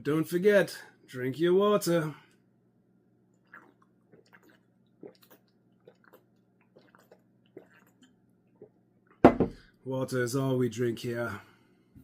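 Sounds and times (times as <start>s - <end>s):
person gulping water: 3.3s - 9.6s.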